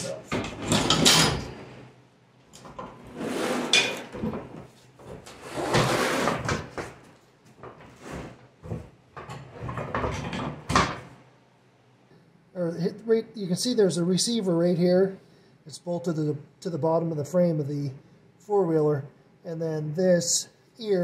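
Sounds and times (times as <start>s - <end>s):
steel frame scraping and clanking: 0.0s - 1.9s, 2.8s - 4.6s, 5.2s - 6.8s.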